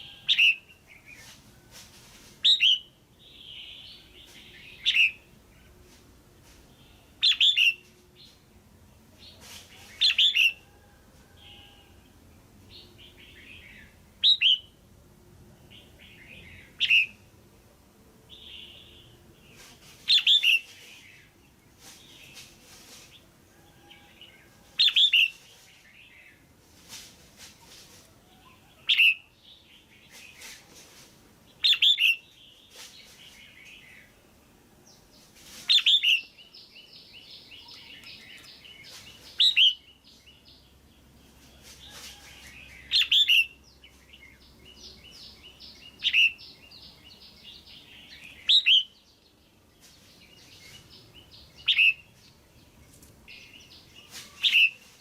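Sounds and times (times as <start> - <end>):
bird sharp calls: 28.4 - 29.3, 45.9 - 46.6, 51.6 - 52.1, 53.3 - 54.9.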